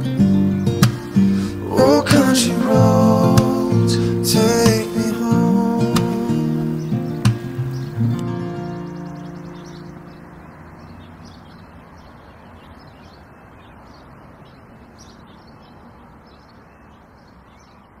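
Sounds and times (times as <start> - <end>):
acoustic guitar song: 0.0 - 11.4
faint steady noise: 0.0 - 18.0
small birds chirping: 0.0 - 18.0.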